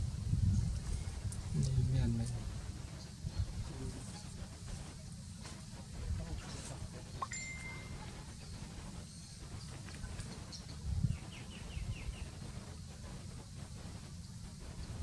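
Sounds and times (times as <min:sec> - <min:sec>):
bird chirping: 0:10.4 - 0:12.4.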